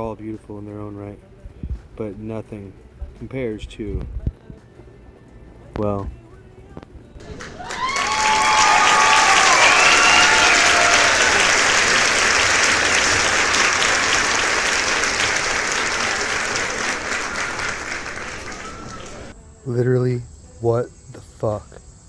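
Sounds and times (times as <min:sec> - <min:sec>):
crowd applause: 0:07.2 - 0:19.3
voices cheering: 0:07.2 - 0:19.3.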